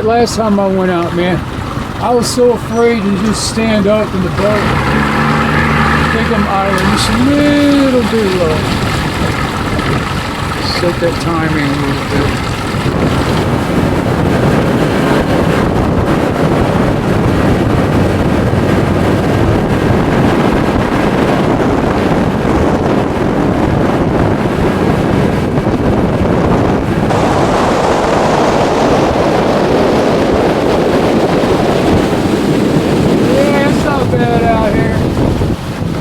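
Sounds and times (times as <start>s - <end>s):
outboard motor idling: 0.0s - 20.6s
wind buffeting microphone: 0.0s - 36.0s.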